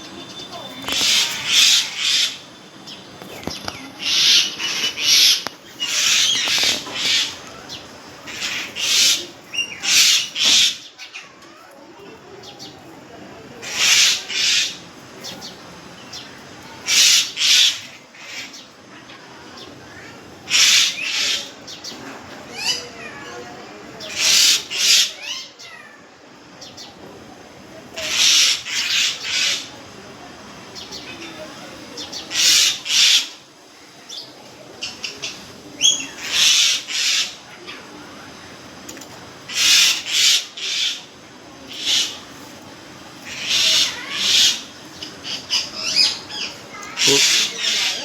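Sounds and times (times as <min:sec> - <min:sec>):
harsh bird screeches: 0:00.8 - 0:02.5, 0:04.0 - 0:07.4, 0:43.3 - 0:44.7, 0:46.9 - 0:48.0.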